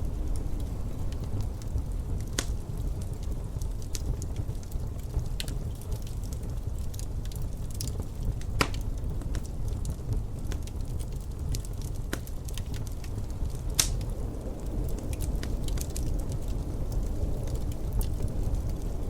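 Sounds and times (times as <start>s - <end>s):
low rumble: 0.0s - 11.8s
sharp fire pops: 0.0s - 19.0s
wood fire crackling: 0.0s - 19.0s.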